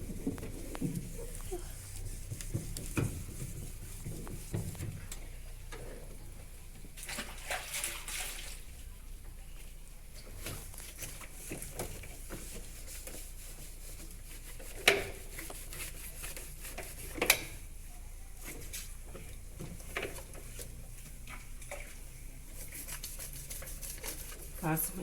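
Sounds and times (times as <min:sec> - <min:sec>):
scrubbing on plastic: 0:00.0 - 0:06.0, 0:10.2 - 0:17.5, 0:18.4 - 0:25.0.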